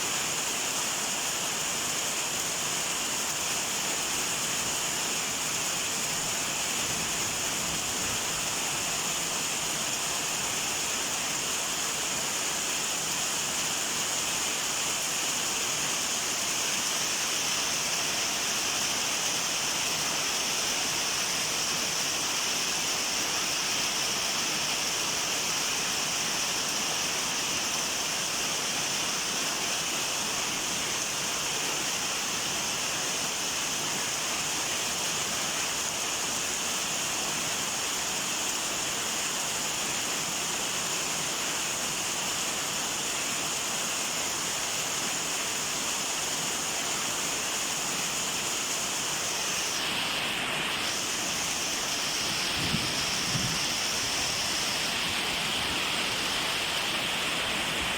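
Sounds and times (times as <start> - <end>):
steady rainfall: 0.0 - 57.9.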